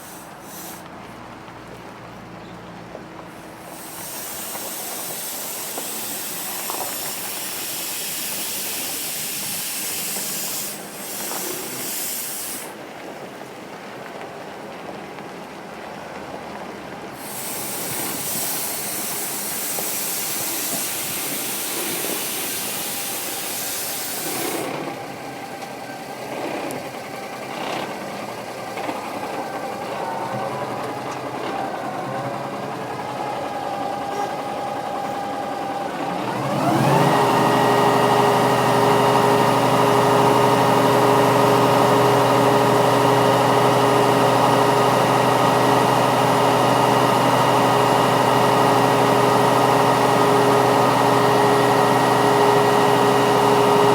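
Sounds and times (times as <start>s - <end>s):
loud air hiss: 0.0s - 0.9s, 3.3s - 12.8s, 17.2s - 26.0s
truck engine running: 0.0s - 12.8s, 17.2s - 53.9s.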